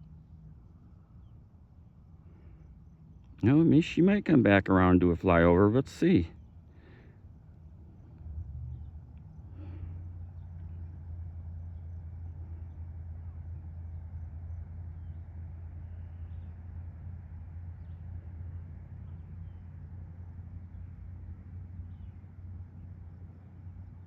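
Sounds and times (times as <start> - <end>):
steady low hum: 0.0 - 24.0
faint bird chirps: 14.3 - 16.6, 19.0 - 19.8.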